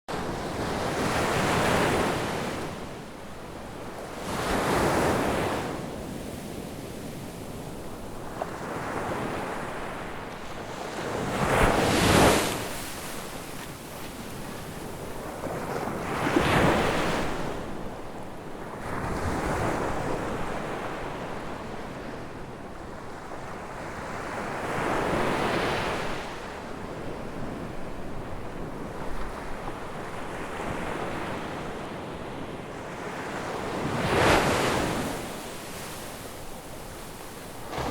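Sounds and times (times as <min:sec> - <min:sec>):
ocean waves breaking: 0:33.4 - 0:37.9.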